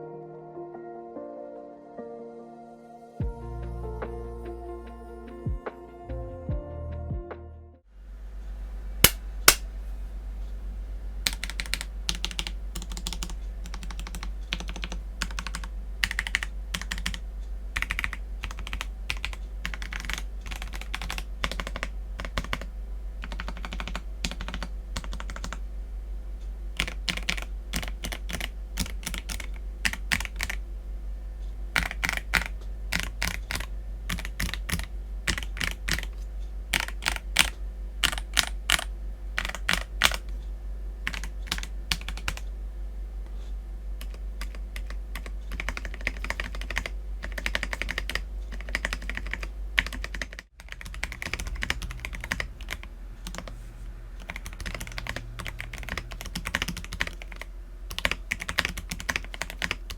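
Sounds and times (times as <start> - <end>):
mechanical keyboard key clacks: 9.0 - 9.6.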